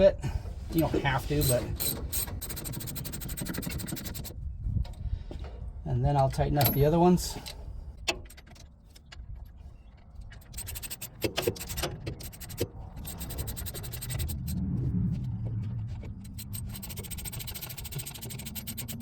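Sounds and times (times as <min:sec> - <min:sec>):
hand tool clicking and scraping: 0:01.3 - 0:04.4, 0:07.4 - 0:14.6, 0:15.2 - 0:19.0
low rumble: 0:12.8 - 0:17.9.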